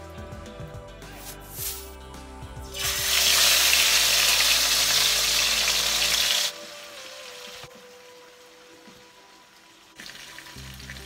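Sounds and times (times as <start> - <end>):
chicken frying in oil: 2.8 - 11.0.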